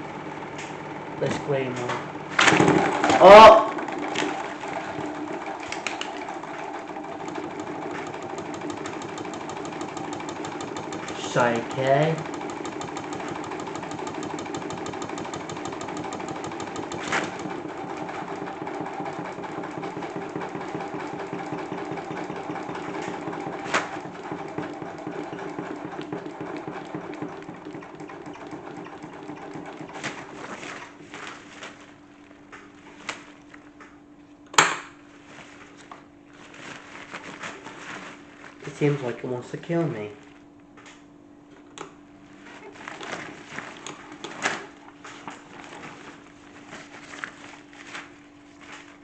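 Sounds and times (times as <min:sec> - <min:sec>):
electric motor humming: 0:02.5 - 0:30.0.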